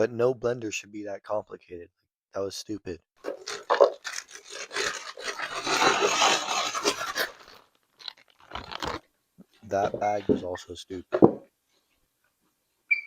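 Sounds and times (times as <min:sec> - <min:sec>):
plastic bag crinkling: 0:03.2 - 0:09.1.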